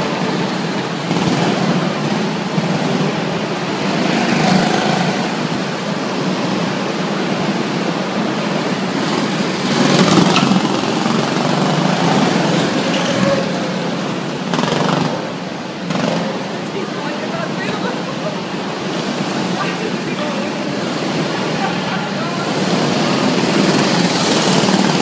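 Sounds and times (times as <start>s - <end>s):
go-kart engines echoing: 0.0s - 25.0s.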